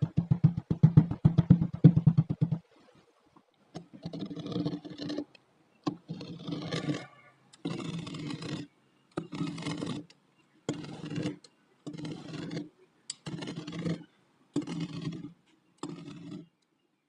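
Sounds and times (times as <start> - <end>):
blade scraping through kinetic sand: 3.8 - 5.3, 5.9 - 16.6.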